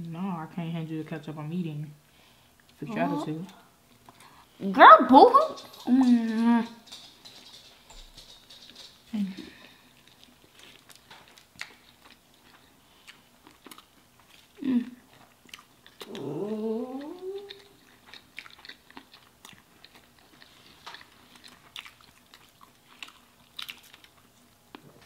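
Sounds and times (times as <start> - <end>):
person chewing food: 9.6 - 25.0.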